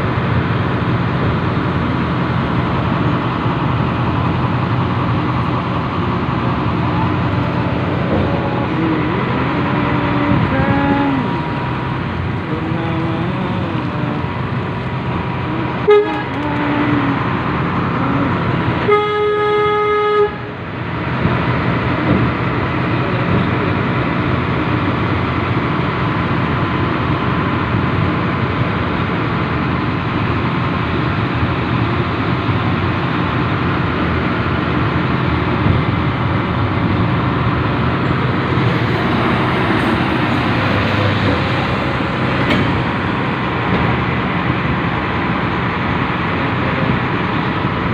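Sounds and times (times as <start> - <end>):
train running noise: 0.0 - 47.9
locomotive horn: 15.6 - 17.4, 18.2 - 20.6.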